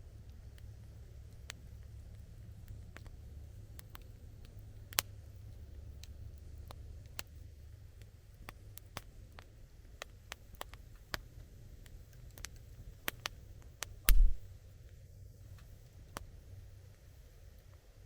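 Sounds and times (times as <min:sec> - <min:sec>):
wood fire crackling: 0:07.9 - 0:14.5.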